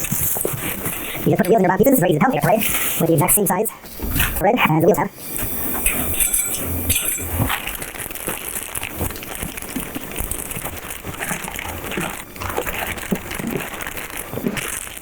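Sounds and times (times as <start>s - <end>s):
plastic packaging crinkling: 7.4s - 15.0s.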